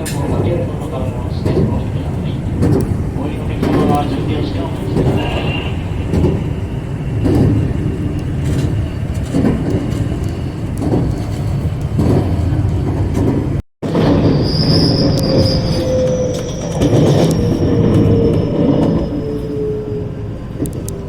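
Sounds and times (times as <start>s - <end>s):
train rumbling on rails: 0.0s - 21.0s
wheels thumping over rail joints: 2.5s - 14.4s
high squeal: 13.9s - 20.4s.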